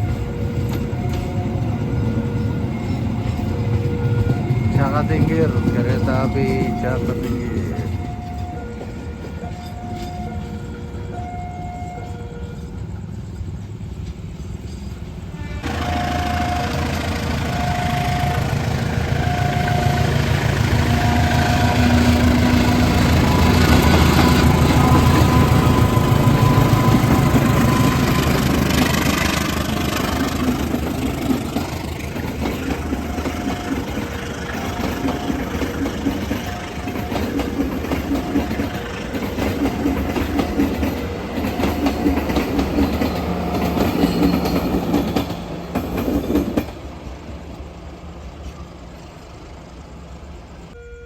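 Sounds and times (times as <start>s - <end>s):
two-note electronic warning tones: 0.0s - 12.7s, 15.6s - 30.1s, 50.8s - 51.0s
wagons clattering over rail joints: 0.0s - 47.6s
train engine rumbling: 0.0s - 51.0s.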